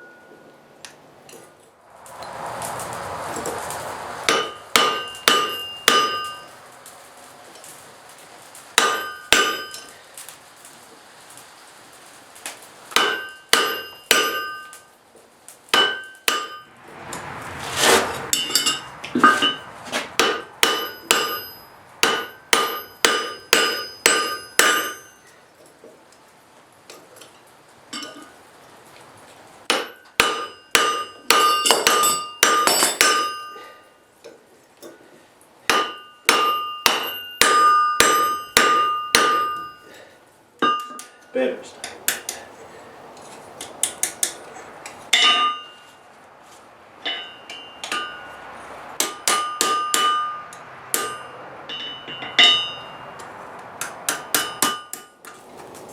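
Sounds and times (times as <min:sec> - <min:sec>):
hammer striking steel on anvil: 0:04.3 - 0:06.5, 0:08.8 - 0:09.9, 0:12.9 - 0:14.9, 0:15.7 - 0:16.7, 0:18.3 - 0:25.3, 0:29.7 - 0:33.8, 0:35.7 - 0:40.0, 0:40.6 - 0:42.4, 0:45.1 - 0:45.8, 0:47.0 - 0:55.2.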